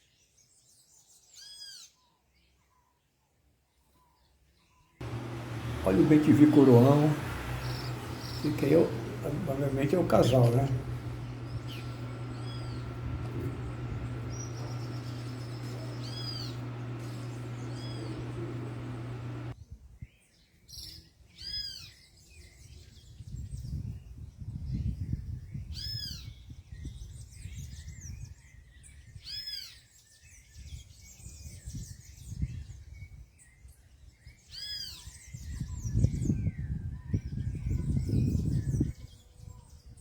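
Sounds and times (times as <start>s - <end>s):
bird calling clear note: 5.0s - 19.5s
steady hum: 5.0s - 19.6s.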